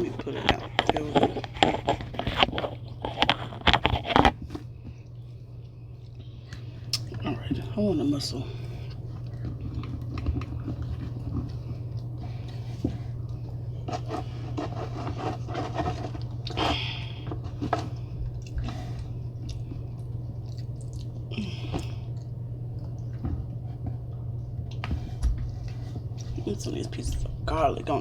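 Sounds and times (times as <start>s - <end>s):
steady low hum: 0.0s - 28.0s
wet chewing and mouth smacks: 0.8s - 7.2s, 8.8s - 13.8s, 17.9s - 26.4s.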